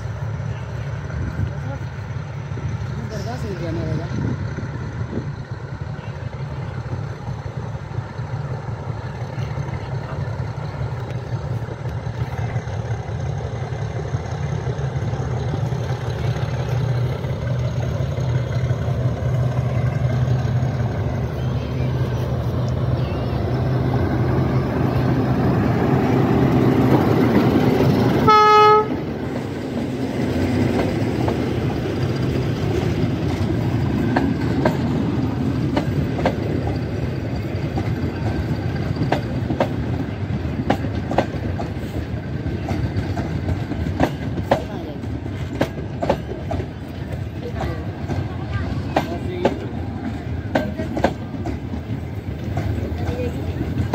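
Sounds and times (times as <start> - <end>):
diesel locomotive engine drone: 0.0 - 53.9
wheels clacking over rail joints: 5.4 - 53.9
train horn blast: 28.2 - 29.0.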